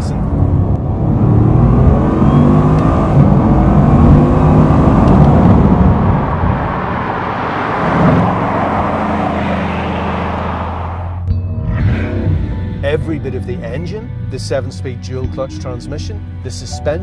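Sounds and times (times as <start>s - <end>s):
car engine whirring: 0.0s - 12.4s.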